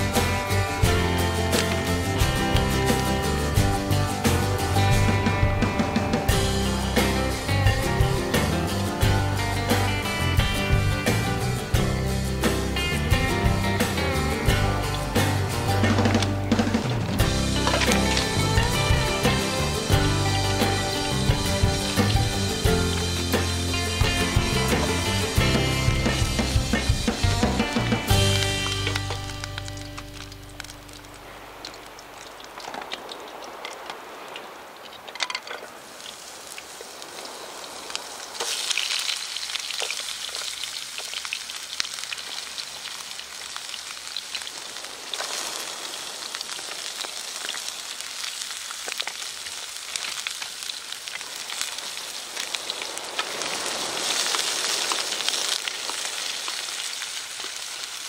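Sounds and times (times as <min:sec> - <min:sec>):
food sizzling in a frying pan: 0:35.9 - 0:58.0.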